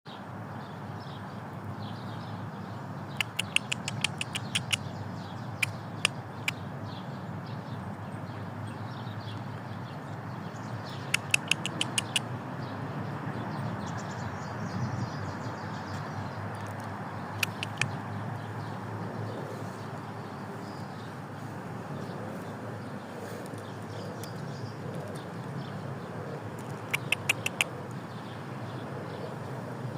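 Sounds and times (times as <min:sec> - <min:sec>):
outdoor background noise: 0:00.1 - 0:29.9
squirrel making sharp clicks: 0:03.1 - 0:06.6, 0:10.8 - 0:12.4, 0:15.9 - 0:18.9, 0:26.6 - 0:28.0.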